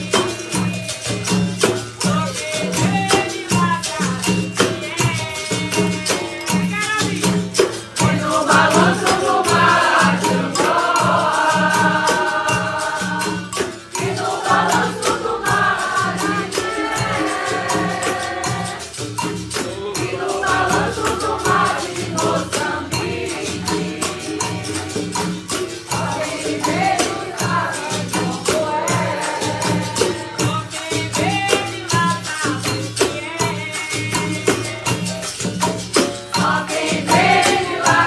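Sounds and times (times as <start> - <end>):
pandeiro: 0.0 - 38.0
voices singing: 7.8 - 35.0, 36.4 - 38.0.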